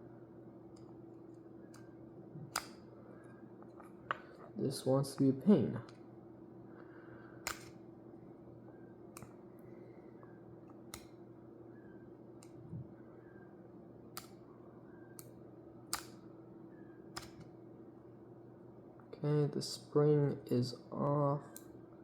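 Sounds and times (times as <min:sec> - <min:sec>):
faint steady hum: 0:00.0 - 0:22.0
sharp metal clicks: 0:02.5 - 0:02.9, 0:07.4 - 0:07.8, 0:15.9 - 0:16.2, 0:17.2 - 0:17.5.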